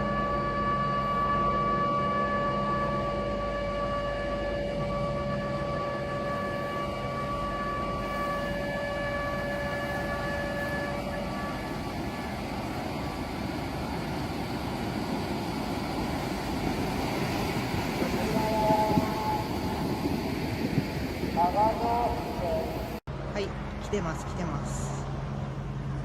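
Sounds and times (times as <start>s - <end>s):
warning siren tone: 0.0s - 20.8s
noisy outdoor rush: 0.0s - 26.0s.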